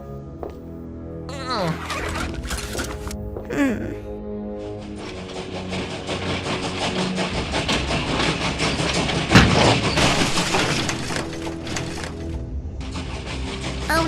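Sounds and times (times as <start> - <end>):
train wheels clickety-clack: 4.7 - 14.0.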